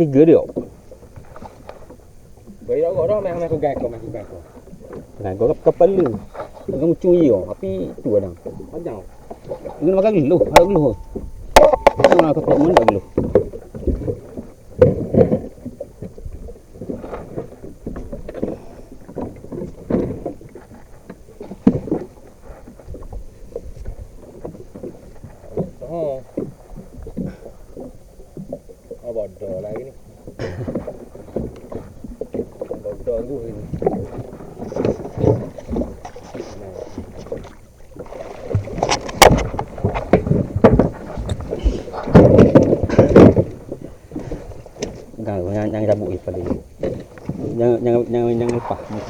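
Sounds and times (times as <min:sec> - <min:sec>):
water slapping against hull: 0:00.0 - 0:49.0
knocks and thumps: 0:10.4 - 0:14.2, 0:38.5 - 0:43.6.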